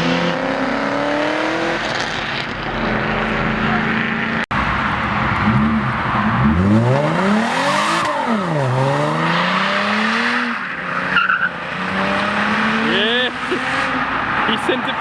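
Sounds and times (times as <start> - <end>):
car engine revving: 0.0 - 14.8
engine humming: 0.0 - 15.0.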